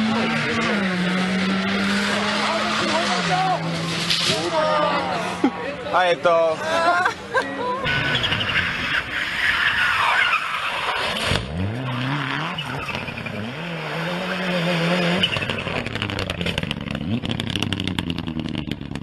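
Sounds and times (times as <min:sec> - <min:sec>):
rally car engine revving: 0:00.0 - 0:04.8, 0:07.8 - 0:19.0
tyres on gravel: 0:15.1 - 0:19.0.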